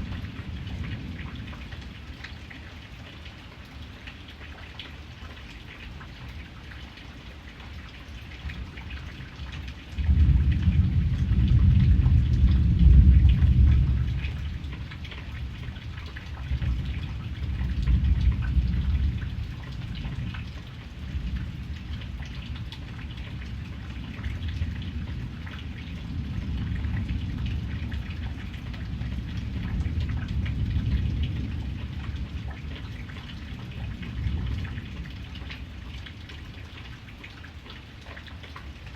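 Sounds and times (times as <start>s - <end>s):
thunder rumbling: 0.0s - 1.6s, 10.0s - 22.6s, 23.3s - 35.2s
steady rain falling: 0.0s - 38.9s.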